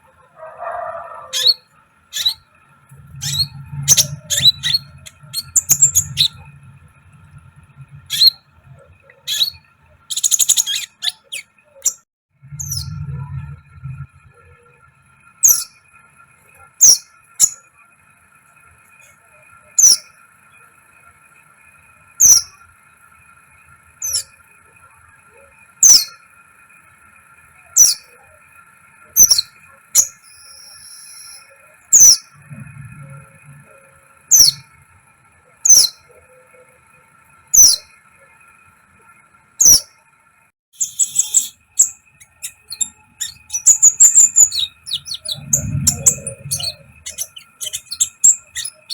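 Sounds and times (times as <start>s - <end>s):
bird chirping: 0.1s - 15.9s, 16.5s - 17.7s, 19.0s - 20.7s, 22.2s - 22.7s, 24.0s - 24.4s, 25.8s - 26.2s, 27.6s - 28.3s, 29.1s - 34.8s, 35.5s - 36.7s, 37.5s - 38.1s, 39.6s - 40.0s, 40.8s - 48.9s
bird twittering: 0.6s - 14.7s, 15.4s - 15.8s, 16.8s - 17.6s, 19.0s - 20.2s, 22.2s - 22.6s, 24.0s - 24.4s, 25.8s - 26.2s, 27.7s - 28.2s, 29.2s - 34.8s, 35.6s - 36.2s, 37.5s - 38.0s, 39.6s - 40.0s, 40.8s - 48.9s
short high whistle: 30.3s - 31.6s.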